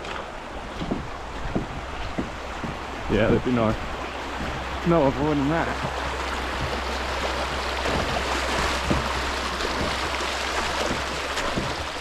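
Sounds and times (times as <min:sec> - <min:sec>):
faint knocks: 0:00.0 - 0:02.9
creek water rushing: 0:00.0 - 0:12.0.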